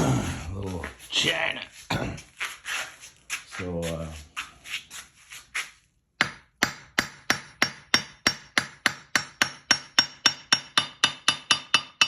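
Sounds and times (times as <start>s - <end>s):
hammer striking anvil: 6.2s - 12.0s.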